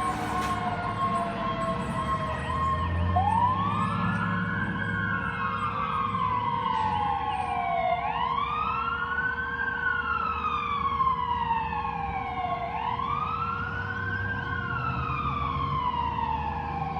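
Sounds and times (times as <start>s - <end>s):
truck engine rumble: 0.0s - 7.9s
fire truck siren wailing: 0.0s - 16.9s.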